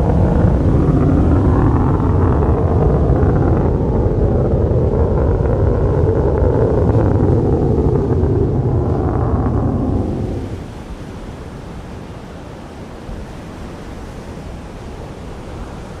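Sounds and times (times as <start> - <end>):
fighter jet engine roar: 0.0 - 11.9.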